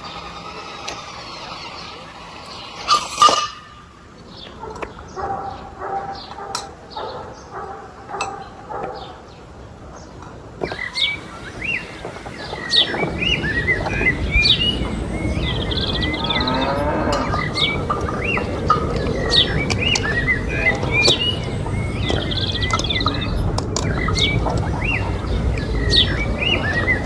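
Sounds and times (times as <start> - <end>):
birds chirping: 0.0 - 27.0
cow mooing: 15.6 - 18.2.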